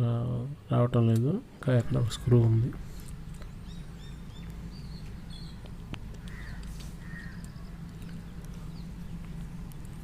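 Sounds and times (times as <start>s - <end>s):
steady low hum: 0.0s - 10.0s
harsh bird calls: 3.5s - 9.4s.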